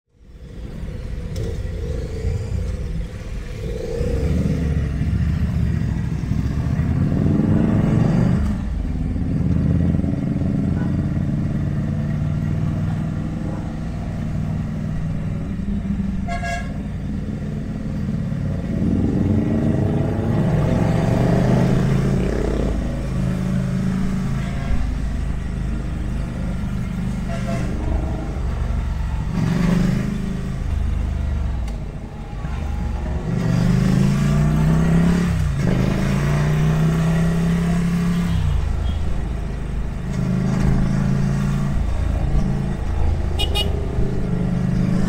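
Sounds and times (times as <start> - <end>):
motorcycle engine accelerating: 0.5 - 16.2, 17.0 - 45.0
horn beep: 43.4 - 43.8.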